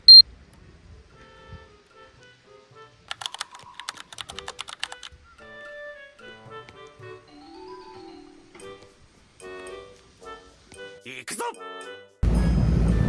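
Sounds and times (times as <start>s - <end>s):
loud high beep: 0.0s - 0.2s
soft background music: 0.8s - 13.0s
keyboard typing clicks: 3.1s - 5.1s.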